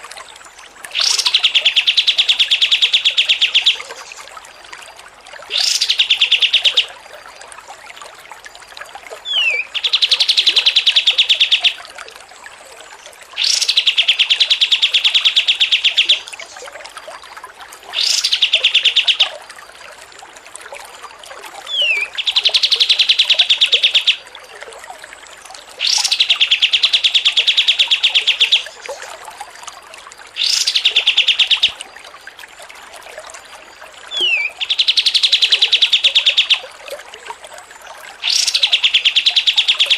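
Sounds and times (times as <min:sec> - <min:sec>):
songbird whistle and trill: 0:21.7 - 0:24.3, 0:25.8 - 0:28.8, 0:30.4 - 0:31.8, 0:34.1 - 0:36.6, 0:38.2 - 0:39.9.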